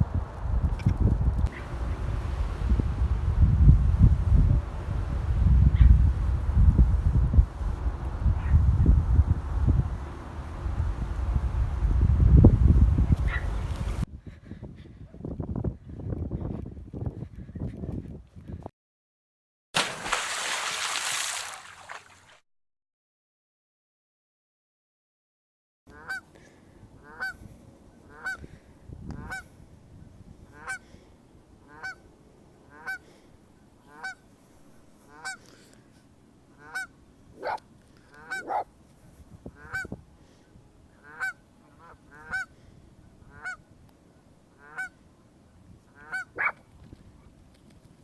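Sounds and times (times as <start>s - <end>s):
waterfowl honking: 25.9s - 26.2s, 27.0s - 27.4s, 28.1s - 28.4s, 30.6s - 30.8s, 31.7s - 32.0s, 32.7s - 33.0s, 33.8s - 34.2s, 35.1s - 35.4s, 36.6s - 38.7s, 39.6s - 39.9s, 41.0s - 42.5s, 43.3s - 43.6s, 44.6s - 45.0s, 46.0s - 46.6s.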